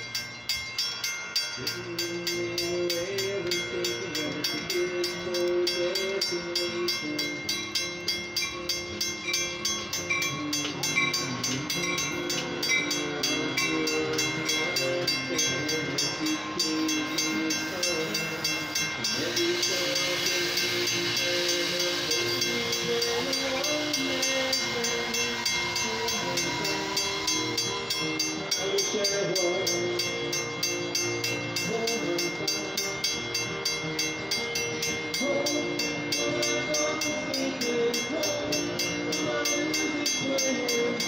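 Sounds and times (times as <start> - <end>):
crossing warning bell ringing: 0.0 - 41.0
train wheels on rails: 0.0 - 41.0.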